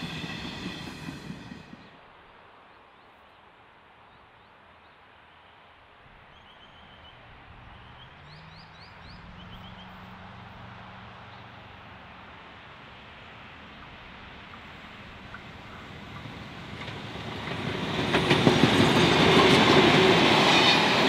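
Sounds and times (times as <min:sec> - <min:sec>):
distant train engine hum: 0:00.0 - 0:02.1, 0:07.9 - 0:21.0.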